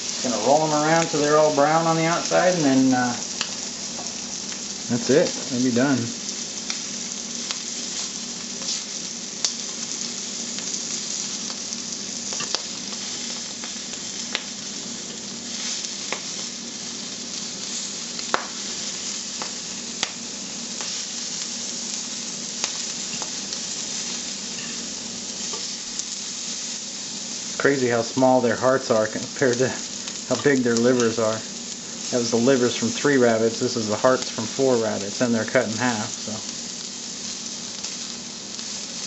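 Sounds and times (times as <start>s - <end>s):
meat sizzling in a frying pan: 0.0s - 39.0s.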